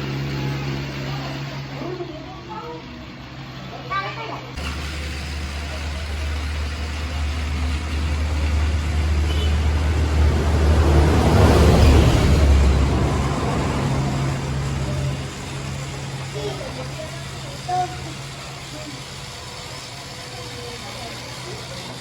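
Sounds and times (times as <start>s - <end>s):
vehicle driving past: 4.6s - 22.0s.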